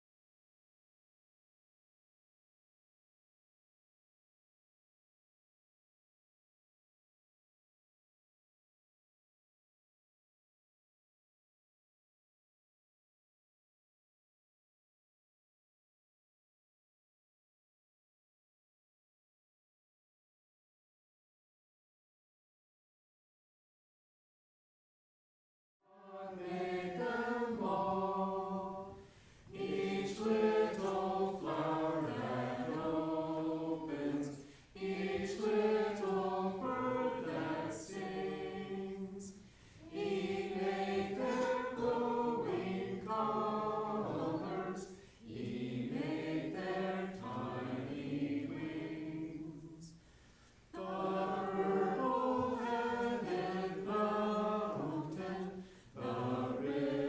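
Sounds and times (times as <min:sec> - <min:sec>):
congregation singing a hymn: 0:25.9 - 0:57.0.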